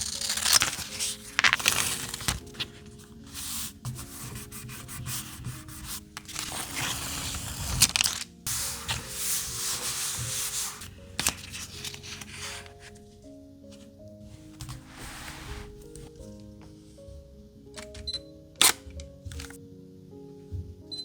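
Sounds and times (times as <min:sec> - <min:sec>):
soft background music: 0:00.0 - 0:21.0
scraping strokes on paper: 0:00.1 - 0:07.8, 0:08.5 - 0:12.8, 0:14.8 - 0:15.8.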